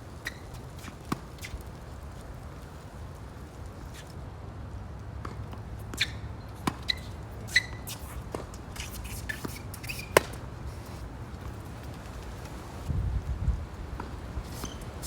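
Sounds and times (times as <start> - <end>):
tennis ball impacts: 5.2 - 11.6
wind rumble on microphone: 12.7 - 15.0.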